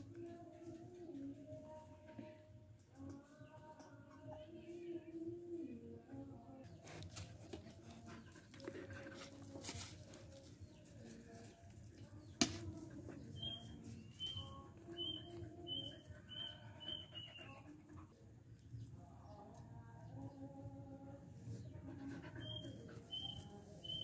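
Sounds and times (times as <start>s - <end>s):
bird chirping: 13.4s - 17.6s, 22.4s - 24.0s.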